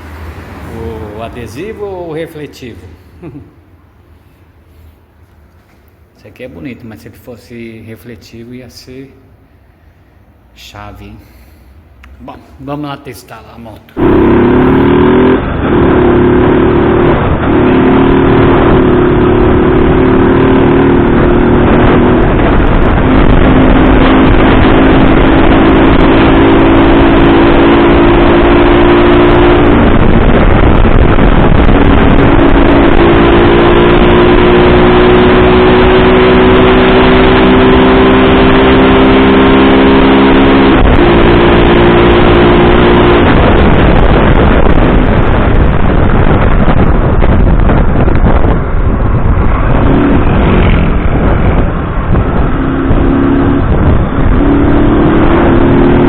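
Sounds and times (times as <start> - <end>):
motorcycle engine shifting gears: 14.0 - 56.0
wind noise on microphone: 14.0 - 56.0.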